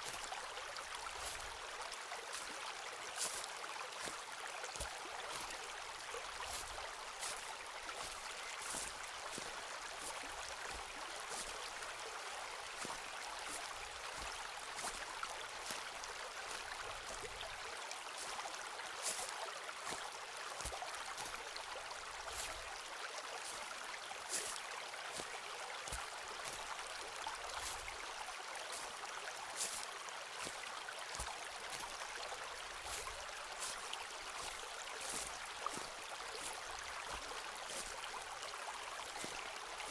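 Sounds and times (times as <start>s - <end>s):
footsteps on forest floor: 1.0s - 1.5s, 2.3s - 2.6s, 3.2s - 5.5s, 6.4s - 11.6s, 12.7s - 15.0s, 15.6s - 15.8s, 19.0s - 21.3s, 24.3s - 24.6s, 27.5s - 27.9s, 28.7s - 32.0s, 32.6s - 38.0s, 39.0s - 39.9s.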